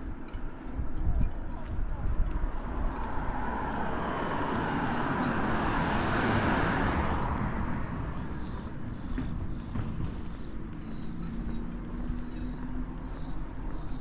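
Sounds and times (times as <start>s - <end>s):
vehicle driving past: 2.6s - 13.2s.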